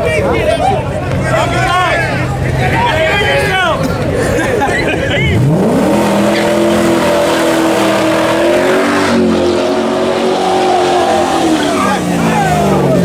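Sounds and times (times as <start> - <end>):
engine revving at high revs: 5.4 - 13.0.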